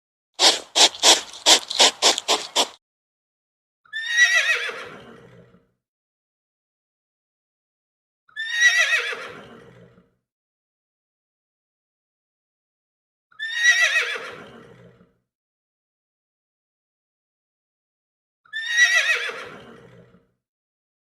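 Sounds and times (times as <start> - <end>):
sharp puffs of noise: 0.4 - 2.8.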